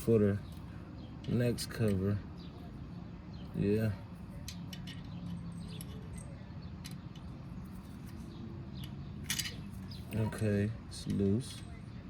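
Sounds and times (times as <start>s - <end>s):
small metal clicks and squeaks: 4.3s - 10.4s.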